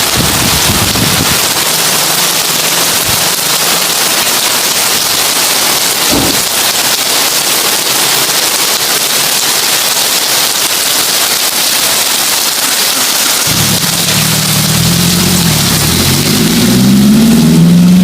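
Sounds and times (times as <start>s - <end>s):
heavy rain on a tin roof: 0.0s - 18.0s
low thump: 6.1s - 6.4s.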